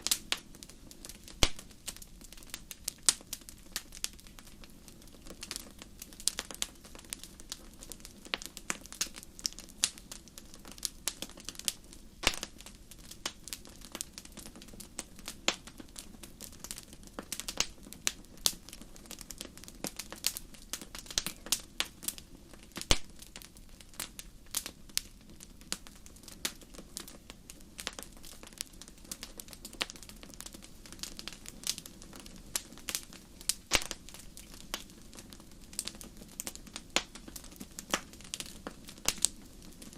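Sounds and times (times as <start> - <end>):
low rumble of burning fire: 0.0 - 39.9
wood fire crackling: 0.0 - 39.9.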